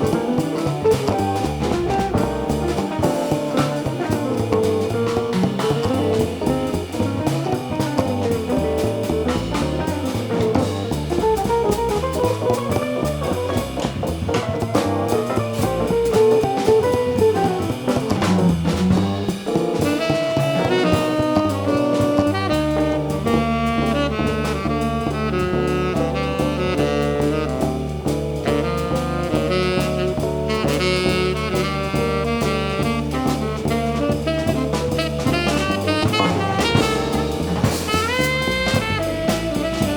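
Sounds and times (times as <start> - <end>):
drum kit: 0.0 - 39.9
repeated bass figure: 0.0 - 39.9
saxophone: 19.8 - 39.9.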